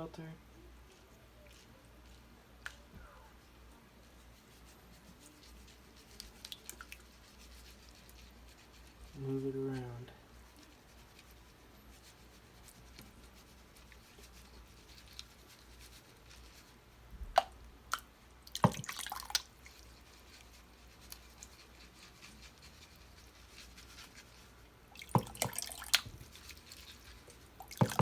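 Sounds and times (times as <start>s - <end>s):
water dripping: 6.1s - 7.1s, 17.3s - 20.4s, 24.9s - 28.0s.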